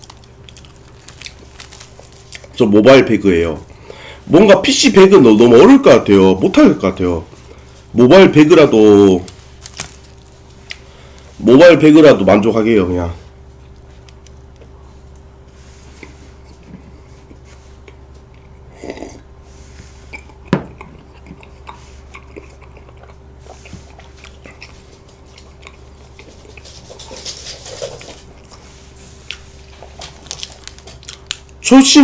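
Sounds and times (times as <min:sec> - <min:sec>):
chewing bread: 0:00.0 - 0:02.6, 0:08.8 - 0:11.3, 0:13.4 - 0:19.3, 0:19.9 - 0:31.6.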